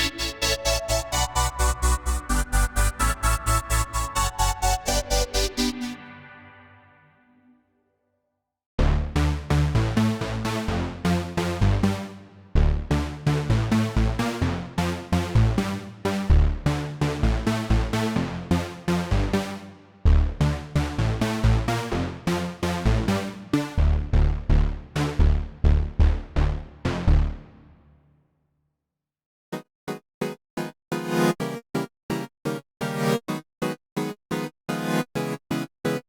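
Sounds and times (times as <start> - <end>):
heavy bass: 0.0 - 5.9, 8.8 - 12.0, 12.6 - 19.4, 20.0 - 27.8
electronic synthesizer pattern: 0.0 - 6.6.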